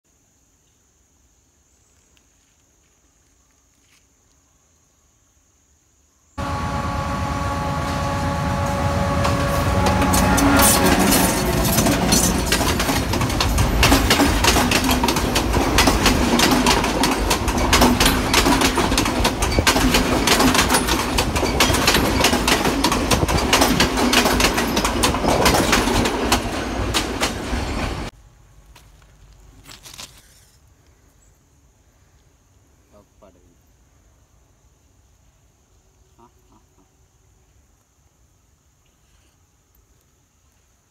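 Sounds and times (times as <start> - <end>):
steady tones: 6.4 - 20.2
train wheels clattering on track: 6.4 - 28.1.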